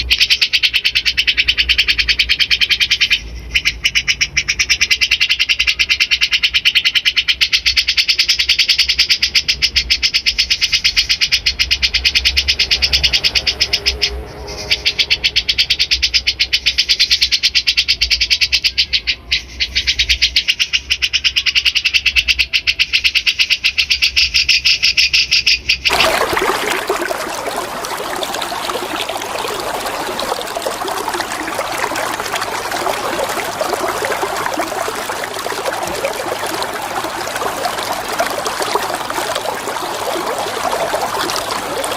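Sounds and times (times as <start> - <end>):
running water: 25.9 - 41.9.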